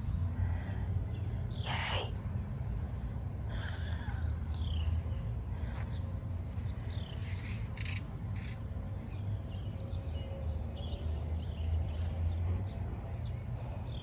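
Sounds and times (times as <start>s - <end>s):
small birds chirping: 0.0s - 8.6s
steady low rumble: 0.0s - 9.2s.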